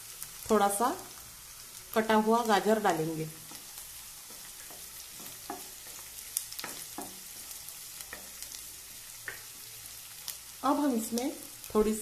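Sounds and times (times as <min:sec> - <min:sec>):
vegetables sizzling in hot oil: 0:00.0 - 0:12.0
wooden spatula scraping a pan: 0:03.4 - 0:09.6.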